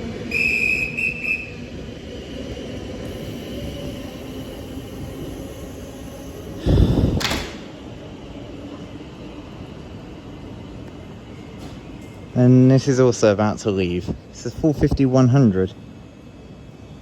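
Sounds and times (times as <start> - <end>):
train doors closing thud: 6.8 - 7.8.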